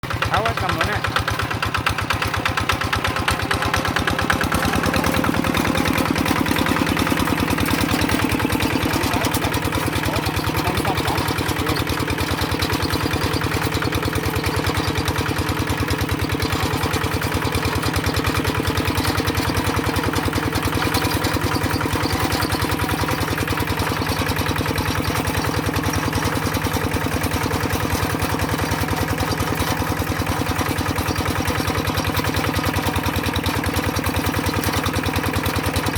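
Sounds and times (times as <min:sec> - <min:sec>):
tractor engine running: 0:00.0 - 0:35.9.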